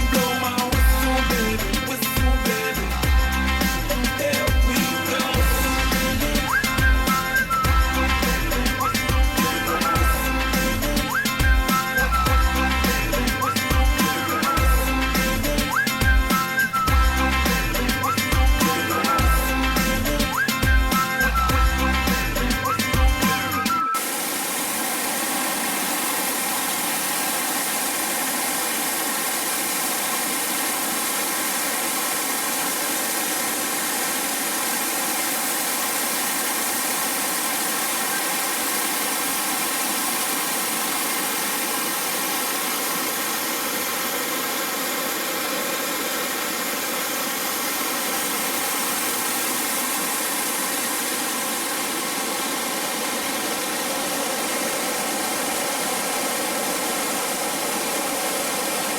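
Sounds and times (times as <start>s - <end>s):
waterfall roar: 24.0s - 58.9s.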